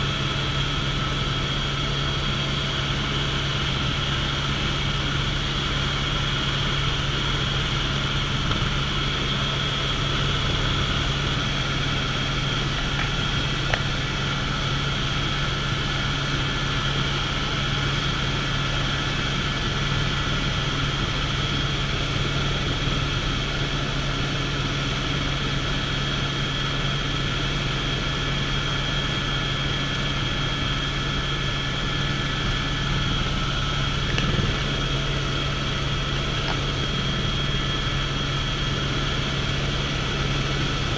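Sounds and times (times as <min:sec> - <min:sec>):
helicopter rotor and engine drone: 0:00.0 - 0:40.9
high whine: 0:31.4 - 0:40.9.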